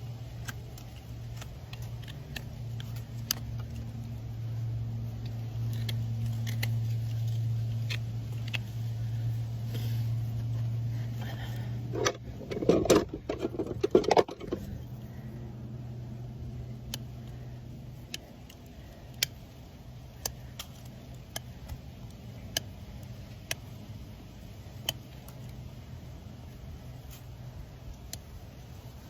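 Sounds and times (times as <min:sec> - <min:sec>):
low steady hum: 0:00.0 - 0:29.0
hoof scraping and knocking: 0:11.3 - 0:14.9.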